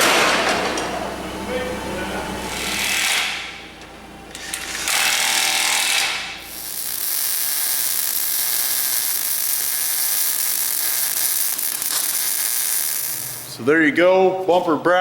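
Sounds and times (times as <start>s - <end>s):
electric welder crackling hiss: 4.5s - 13.7s.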